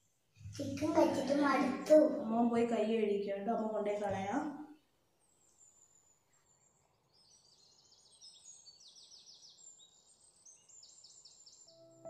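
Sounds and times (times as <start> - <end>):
faint bird chirping: 4.6 - 12.0.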